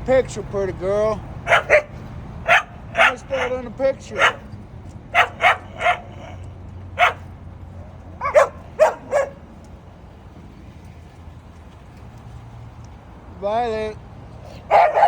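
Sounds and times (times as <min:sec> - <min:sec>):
dog barking: 0:01.4 - 0:07.3, 0:08.2 - 0:09.5, 0:14.6 - 0:15.0.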